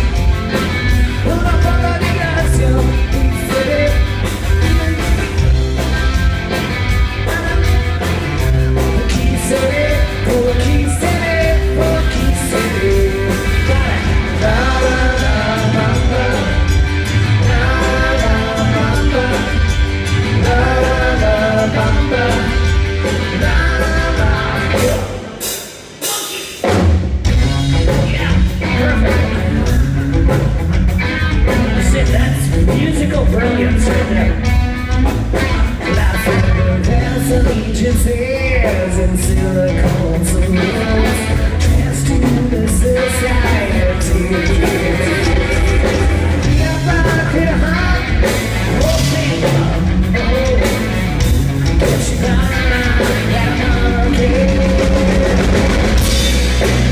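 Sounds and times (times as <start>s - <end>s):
live rock band playing: 0.0s - 56.9s
man singing: 1.1s - 5.6s, 7.0s - 26.7s, 27.8s - 29.9s, 31.4s - 35.0s, 35.6s - 56.9s.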